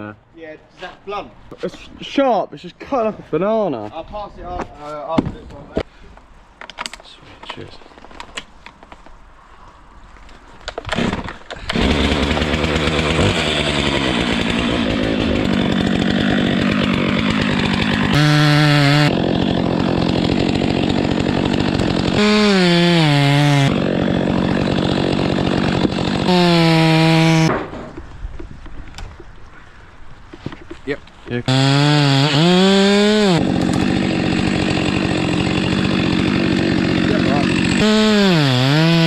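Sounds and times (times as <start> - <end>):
chainsaw cutting wood: 10.7 - 27.7, 31.5 - 39.0.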